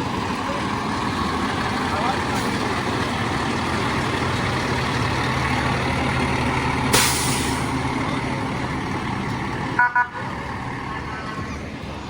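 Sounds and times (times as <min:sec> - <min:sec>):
heavy truck engine running: 0:00.0 - 0:12.0
air hiss burst: 0:06.9 - 0:07.6.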